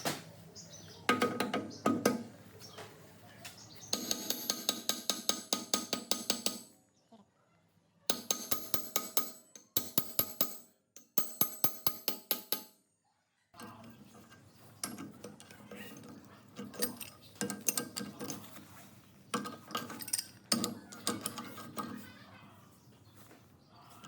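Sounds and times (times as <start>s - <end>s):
metal parts clattering: 13.6s - 22.2s
ringing metallic clinks: 19.4s - 21.6s.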